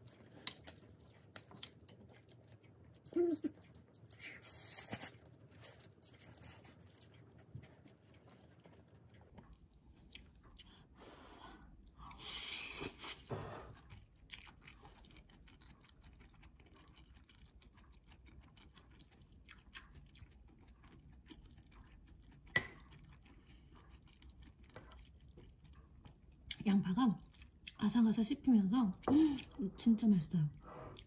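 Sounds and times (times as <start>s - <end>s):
quiet crunchy chewing: 0.0s - 28.2s
metal spoon clinking bowl: 22.5s - 22.9s.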